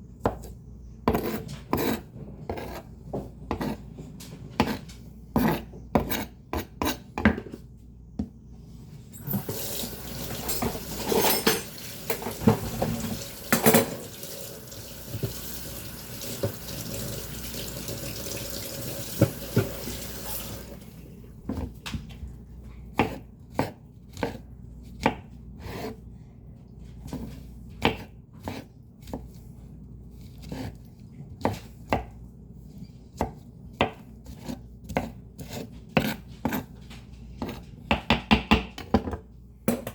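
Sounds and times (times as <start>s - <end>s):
fan humming: 8.6s - 21.4s
tap running water: 9.2s - 21.0s.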